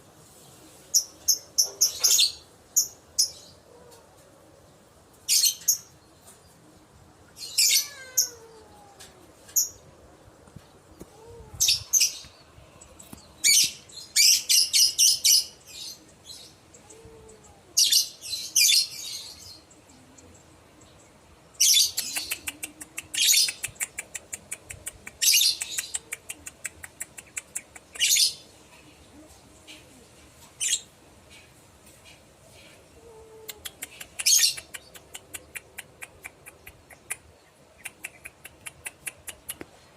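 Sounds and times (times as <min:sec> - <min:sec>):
lovebird chirping and chattering: 0:00.9 - 0:03.6, 0:07.4 - 0:08.4, 0:11.6 - 0:19.6, 0:21.5 - 0:28.5, 0:30.6 - 0:30.9, 0:33.5 - 0:39.7.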